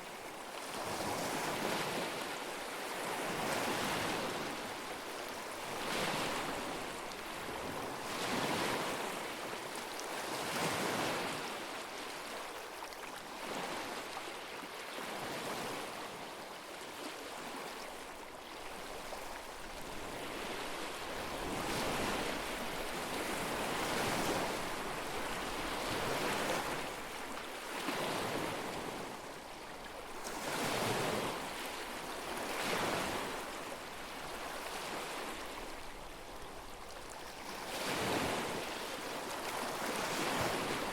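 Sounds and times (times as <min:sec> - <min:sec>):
lake waves washing onto shore: 0:18.5 - 0:40.9.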